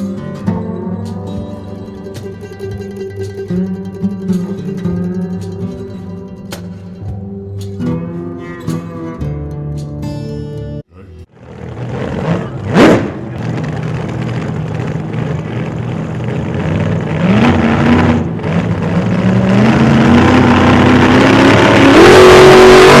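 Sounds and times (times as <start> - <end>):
pickup engine accelerating: 11.4 - 23.0.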